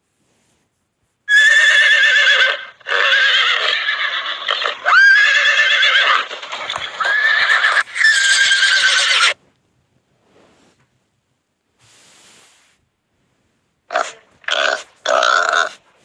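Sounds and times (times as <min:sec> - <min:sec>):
horse neighing: 0:01.3 - 0:09.4.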